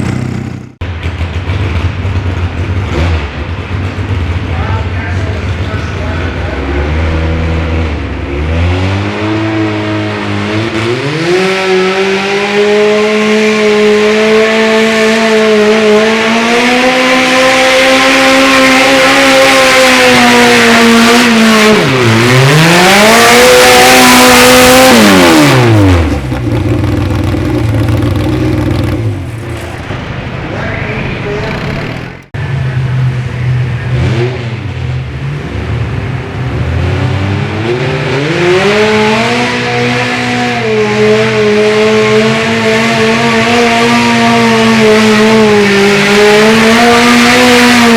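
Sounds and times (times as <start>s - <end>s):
tractor engine revving: 0.0s - 0.8s, 16.3s - 32.4s.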